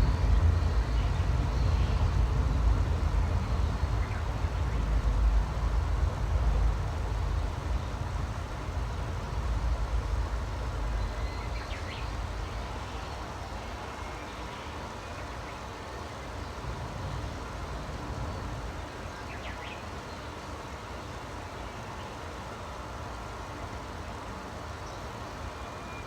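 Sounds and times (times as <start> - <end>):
steady low rumble: 0.0 - 13.7.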